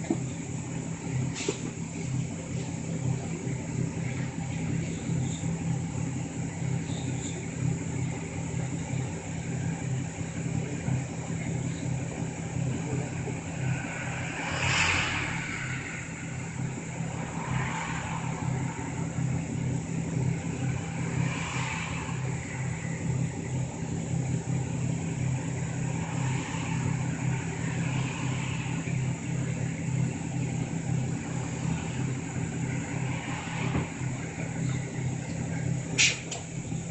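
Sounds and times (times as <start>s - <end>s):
bus engine drone: 0.0s - 36.9s
road noise: 0.0s - 36.9s.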